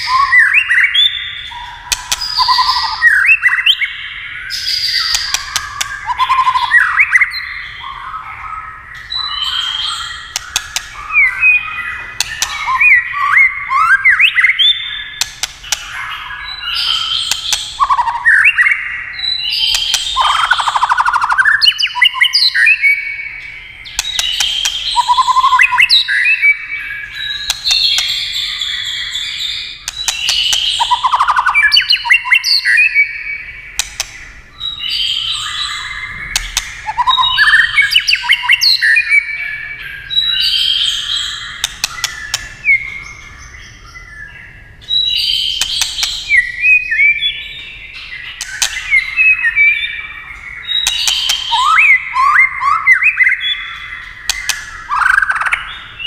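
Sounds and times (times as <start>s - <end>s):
bird clicking calls: 0.0s - 3.8s, 5.0s - 7.3s, 9.6s - 18.8s, 19.6s - 26.5s, 27.2s - 28.7s, 29.8s - 33.1s, 33.7s - 34.3s, 36.3s - 39.2s, 40.8s - 43.0s, 44.8s - 47.2s, 48.0s - 49.7s, 50.4s - 55.7s
songbird whistled song: 0.0s - 56.0s.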